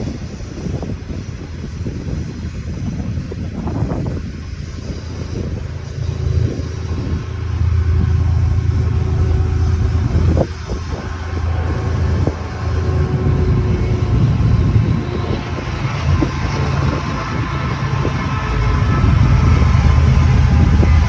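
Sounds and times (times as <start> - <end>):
freight train rumbling past: 0.0 - 21.0.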